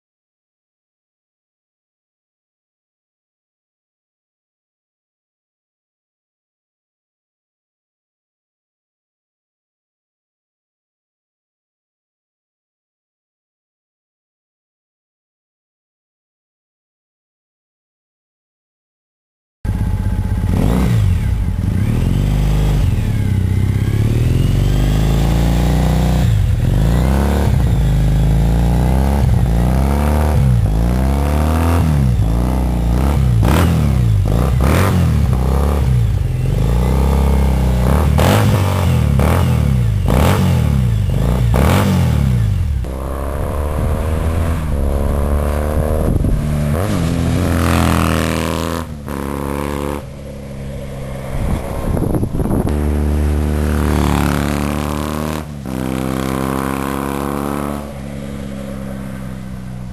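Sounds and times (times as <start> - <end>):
motorcycle engine revving: 19.7 - 59.9.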